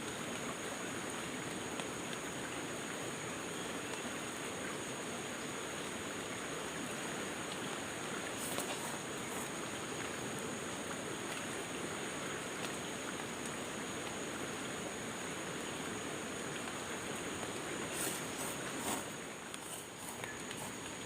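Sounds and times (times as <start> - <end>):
steady rushing noise: 17.8 - 21.0.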